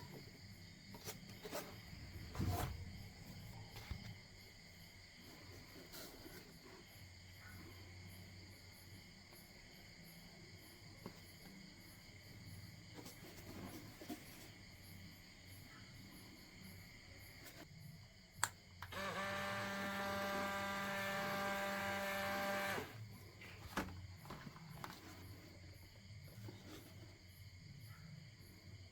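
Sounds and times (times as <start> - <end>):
small electric motor humming: 18.8 - 23.0.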